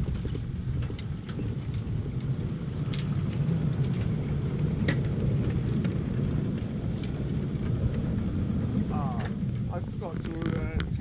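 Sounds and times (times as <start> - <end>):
miniature train rumbling: 0.0 - 11.0.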